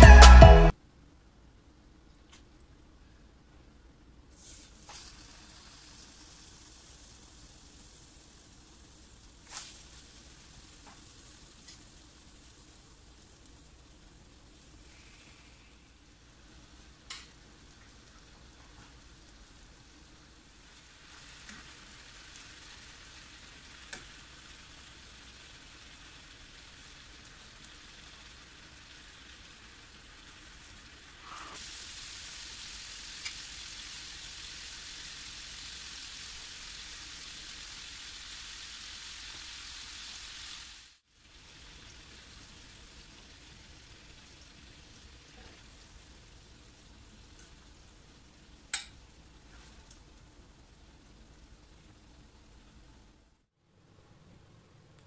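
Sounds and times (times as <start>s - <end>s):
chicken sizzling in hot oil: 4.3s - 52.9s.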